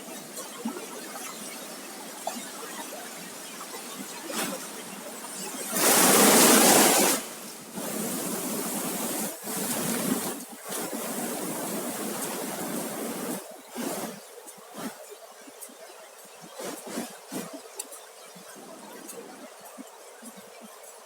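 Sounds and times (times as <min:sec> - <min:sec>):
water washing on beach: 0:03.7 - 0:14.1.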